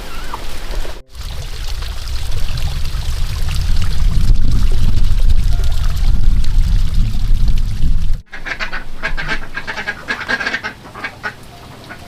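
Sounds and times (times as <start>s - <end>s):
loud low rushing noise: 1.1s - 9.7s
ducks quacking: 8.3s - 12.0s.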